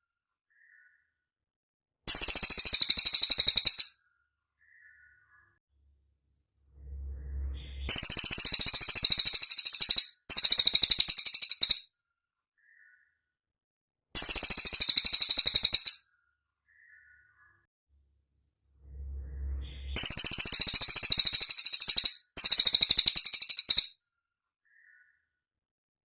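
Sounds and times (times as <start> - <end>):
songbird trilling: 2.1 - 3.9, 7.7 - 11.8
low rumble: 5.8 - 8.8, 18.0 - 20.5.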